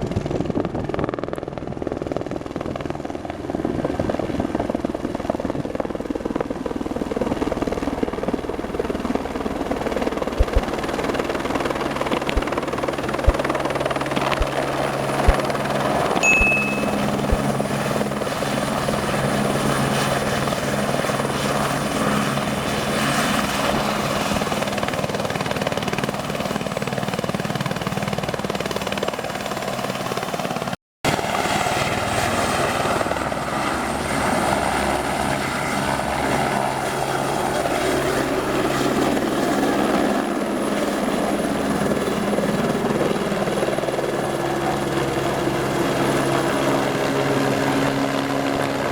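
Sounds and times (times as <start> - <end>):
helicopter rotor thrum: 9.0 - 22.2
short high beep: 16.2 - 17.4.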